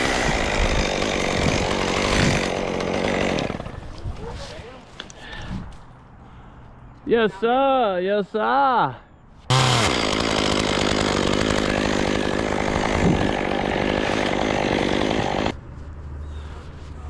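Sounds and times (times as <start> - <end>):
chainsaw cutting wood: 0.0 - 3.8, 9.5 - 15.6.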